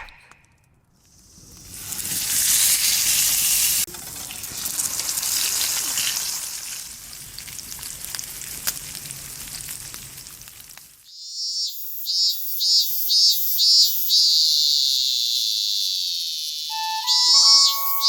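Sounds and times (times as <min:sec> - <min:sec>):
steak sizzling on a grill: 0:01.2 - 0:11.1.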